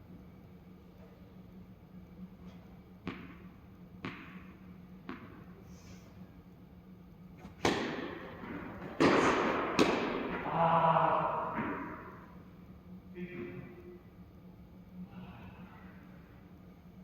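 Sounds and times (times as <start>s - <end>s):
racket hitting ball: 3.0s - 5.5s, 7.4s - 10.6s, 11.2s - 12.4s
tennis ball bouncing on court: 3.0s - 5.5s, 7.4s - 10.6s, 11.4s - 12.2s.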